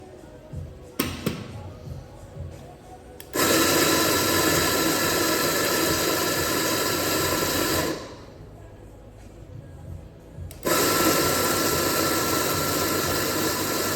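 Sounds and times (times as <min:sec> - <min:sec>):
coffee grinder motor whine: 0:03.4 - 0:08.3, 0:10.6 - 0:13.9.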